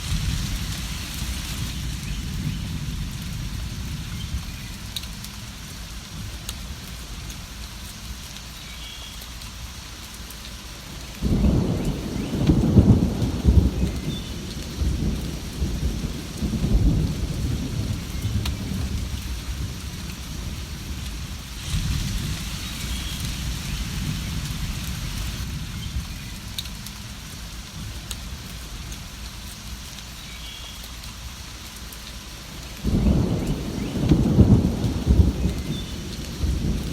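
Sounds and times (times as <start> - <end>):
thunder rumbling: 0.0 - 6.4, 11.2 - 28.5, 32.8 - 36.9
steady rain: 0.0 - 36.9.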